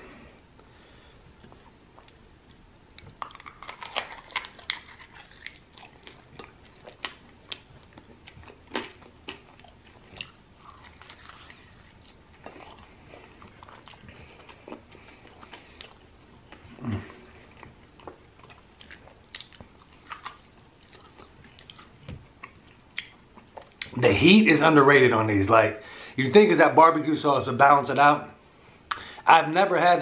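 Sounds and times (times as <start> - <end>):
wet chewing: 2.9 - 24.0
crunching bites: 3.0 - 12.8.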